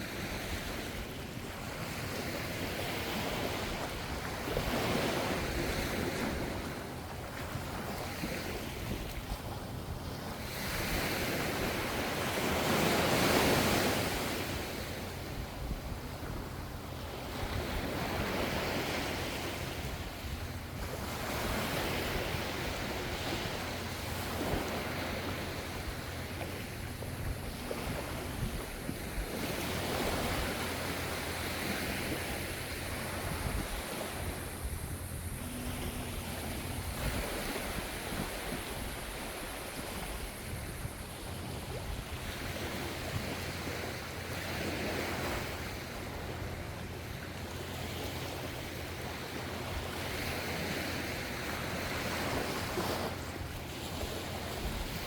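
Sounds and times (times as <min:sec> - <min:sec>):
low rumble of sea: 0:00.0 - 0:55.0
ocean waves breaking on shore: 0:00.0 - 0:55.0.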